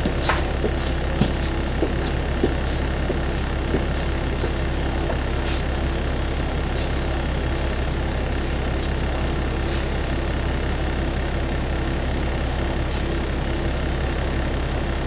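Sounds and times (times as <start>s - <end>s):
railcar engine idling: 0.0s - 15.0s.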